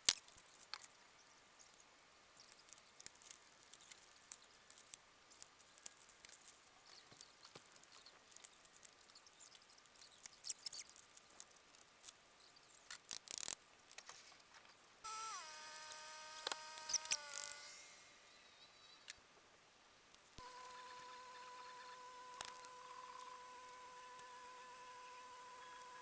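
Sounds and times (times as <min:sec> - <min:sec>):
pitched multi-tone whine: 0:15.1 - 0:18.5, 0:20.4 - 0:26.0.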